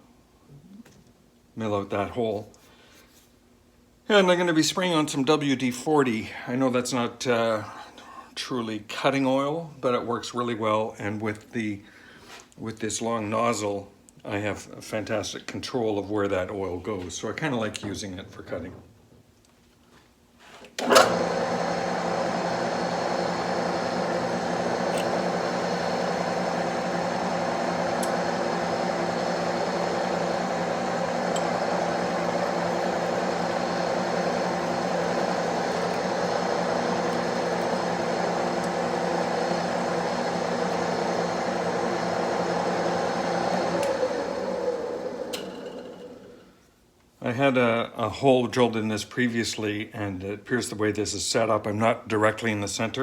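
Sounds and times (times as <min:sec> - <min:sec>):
metal lathe drilling: 0:20.8 - 0:46.4.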